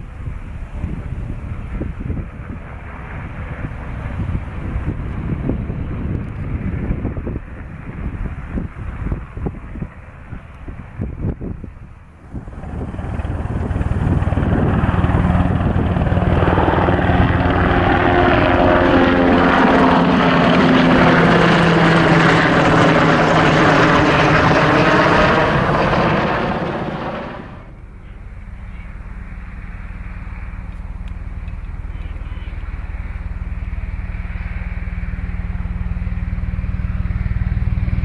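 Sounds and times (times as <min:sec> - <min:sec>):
helicopter flying past: 0:12.2 - 0:32.0
faint steady rumble: 0:12.2 - 0:38.0.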